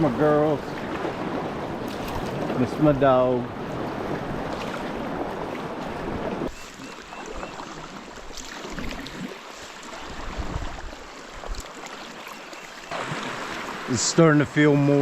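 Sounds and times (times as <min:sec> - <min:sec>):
water sloshing and splashing: 0:00.0 - 0:15.0
wind on microphone: 0:10.0 - 0:11.7.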